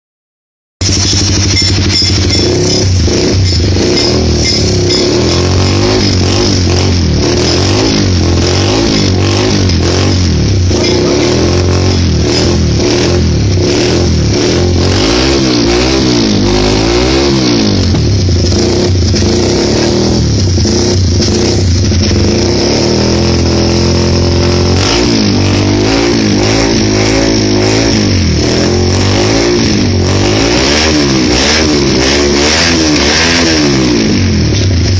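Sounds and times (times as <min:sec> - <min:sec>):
motorcycle engine revving: 0:00.8 - 0:34.9.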